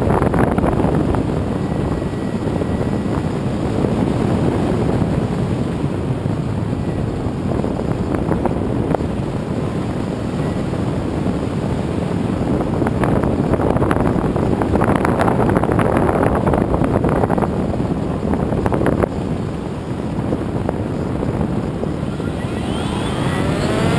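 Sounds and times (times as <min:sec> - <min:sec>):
wind rushing over microphone: 0:00.0 - 0:23.9
rough crackling buffets: 0:21.6 - 0:23.9.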